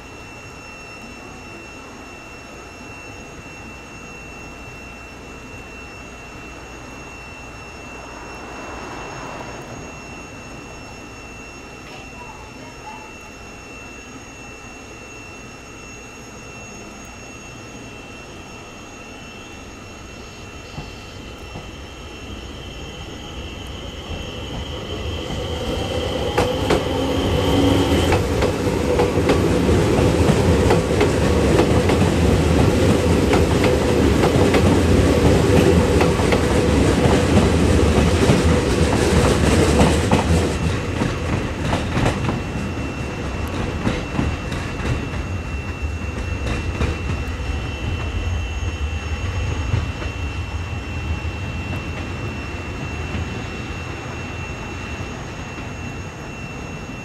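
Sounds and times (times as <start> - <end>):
thin high whine: 0.0 - 57.0
train running over rails: 0.0 - 57.0.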